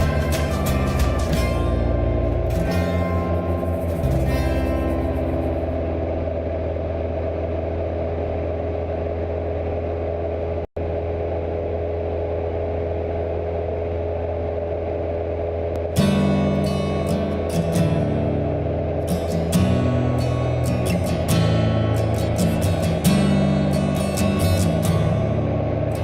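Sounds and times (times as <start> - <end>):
music: 0.0 - 7.6, 15.8 - 26.0
propeller plane engine droning: 0.0 - 26.0.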